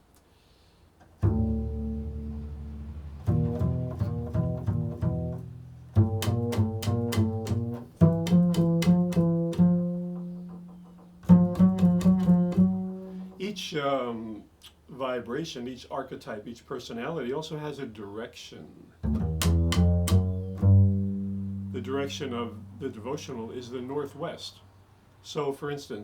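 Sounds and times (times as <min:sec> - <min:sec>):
held low string chord: 0:01.2 - 0:13.6, 0:19.0 - 0:23.6
quick plucked notes: 0:01.2 - 0:13.7, 0:19.0 - 0:23.3.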